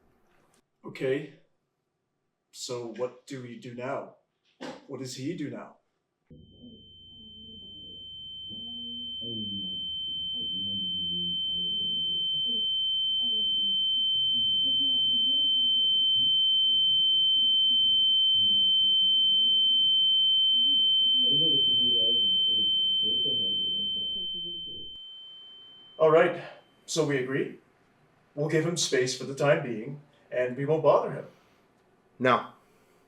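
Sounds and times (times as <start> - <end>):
high-pitched ringing tone: 6.3 - 27.3
muffled voices talking: 6.5 - 12.6, 20.7 - 25.0, 26.0 - 27.5.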